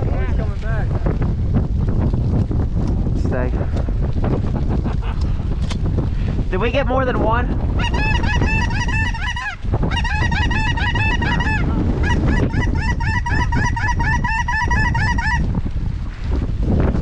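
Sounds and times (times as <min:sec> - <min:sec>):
wind buffeting microphone: 0:00.0 - 0:17.0
geese honking: 0:07.8 - 0:15.5.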